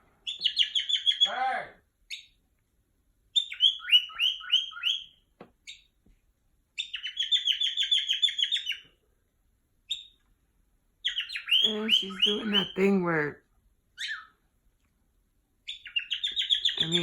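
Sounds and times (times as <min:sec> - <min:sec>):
bird alarm calls: 0:00.2 - 0:01.4, 0:03.4 - 0:05.8, 0:06.8 - 0:08.9, 0:11.0 - 0:12.8, 0:15.7 - 0:17.0.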